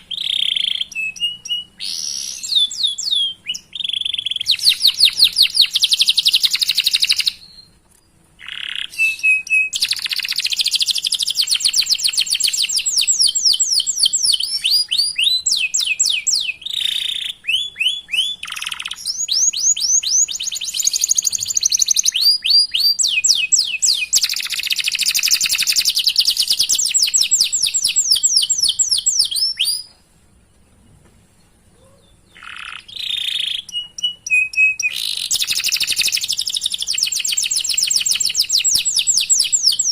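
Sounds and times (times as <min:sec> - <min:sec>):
canary singing trills: 0:00.0 - 0:30.0, 0:31.7 - 0:39.9.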